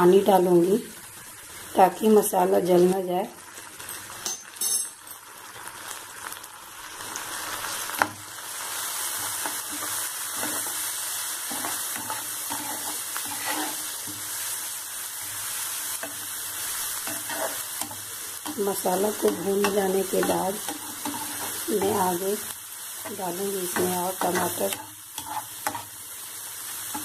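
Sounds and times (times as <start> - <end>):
onions sizzling in hot oil: 0.0 - 27.0
spatula scraping and stirring: 9.0 - 22.3, 23.0 - 26.0.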